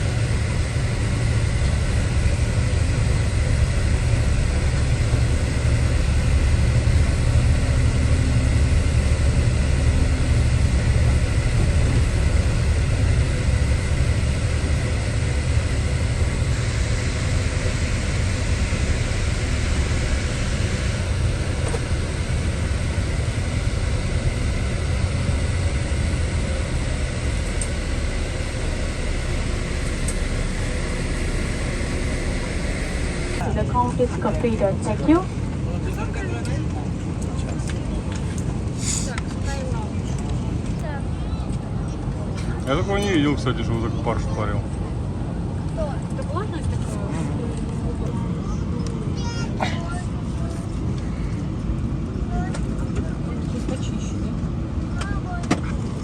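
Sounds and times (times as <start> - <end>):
faint steady tones: 0.0 - 34.8
aircraft cabin low rumble: 0.0 - 56.0.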